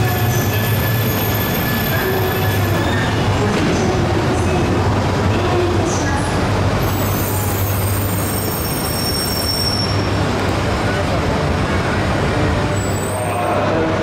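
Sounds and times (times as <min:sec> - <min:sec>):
train low hum: 0:00.0 - 0:14.0.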